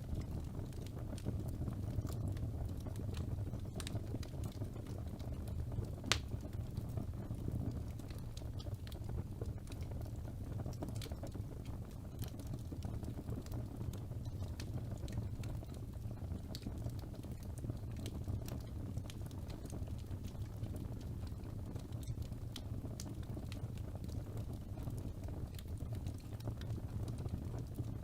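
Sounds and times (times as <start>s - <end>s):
fire flames rumbling: 0.0s - 28.0s
wood crackling: 2.0s - 7.3s, 7.9s - 28.0s
sharp pop of fire: 6.1s - 6.4s.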